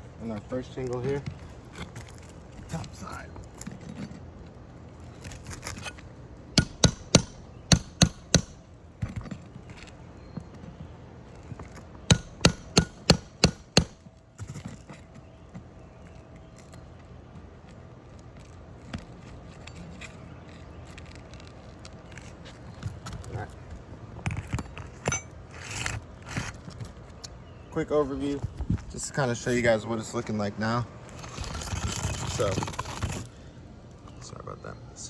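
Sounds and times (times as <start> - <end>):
hammer striking metal: 6.6 - 8.6, 12.1 - 14.0.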